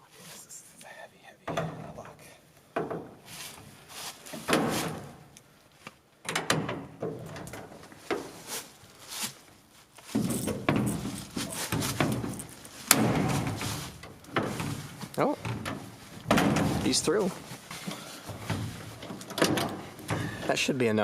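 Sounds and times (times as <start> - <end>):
chain link cracking: 10.1 - 15.0.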